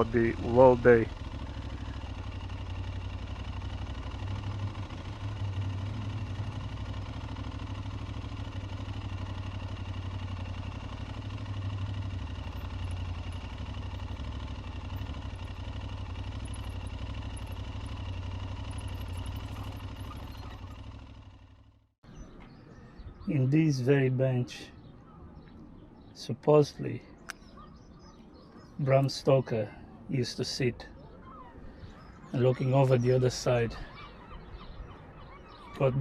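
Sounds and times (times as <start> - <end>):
motorcycle engine running: 0.0 - 23.1.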